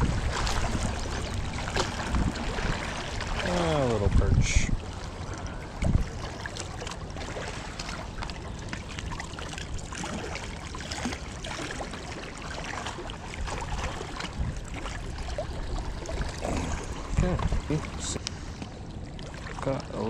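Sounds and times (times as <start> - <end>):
low rumble: 0.0 - 6.3
water lapping and splashing: 0.0 - 20.0.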